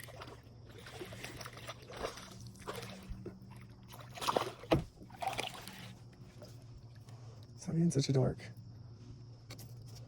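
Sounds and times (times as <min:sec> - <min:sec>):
water sloshing: 0:00.0 - 0:07.4
knocks of handling in a kayak: 0:04.6 - 0:05.1.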